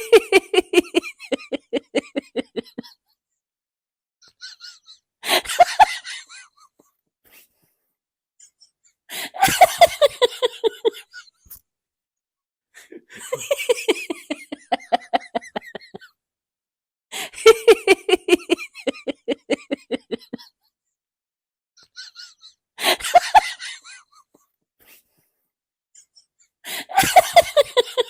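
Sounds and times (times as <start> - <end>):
woman laughing: 0.0 - 3.0, 4.4 - 6.4, 9.4 - 11.2, 13.1 - 16.1, 17.2 - 20.5, 26.8 - 28.0.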